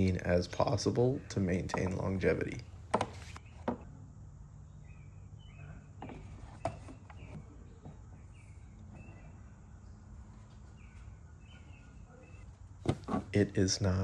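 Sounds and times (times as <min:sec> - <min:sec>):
low steady hum: 0:00.0 - 0:14.0
bird chirps: 0:03.1 - 0:12.7.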